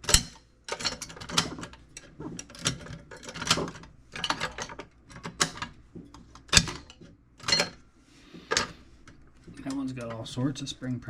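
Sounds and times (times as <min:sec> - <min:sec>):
spring mechanism clicks and rattles: 0:00.0 - 0:07.8.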